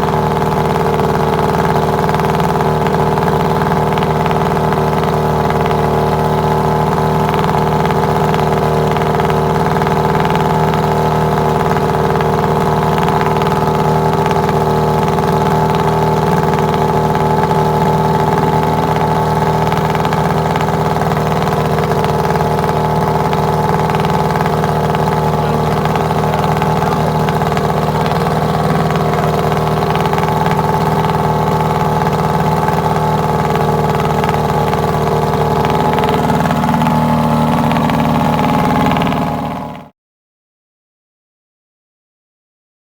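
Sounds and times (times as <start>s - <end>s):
outboard motor idling: 0.0s - 39.9s.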